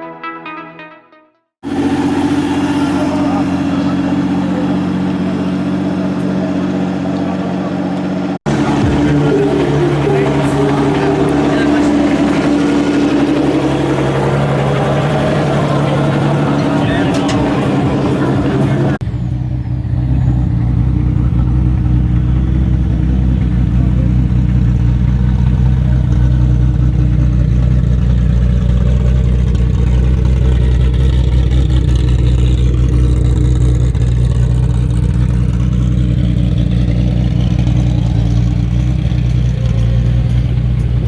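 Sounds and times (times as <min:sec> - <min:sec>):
car engine idling: 0:01.6 - 0:41.0.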